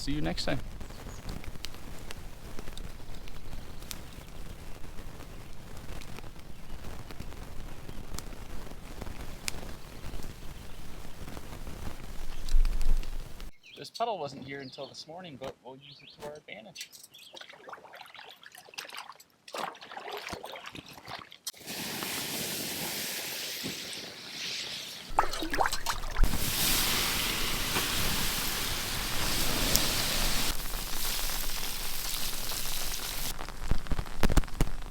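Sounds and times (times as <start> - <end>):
water rushing: 25.1 - 30.5.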